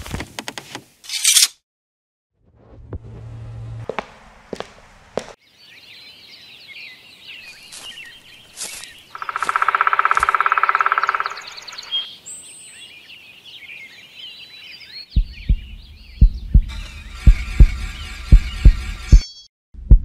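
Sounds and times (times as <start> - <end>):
small birds chirping: 5.2 - 19.5.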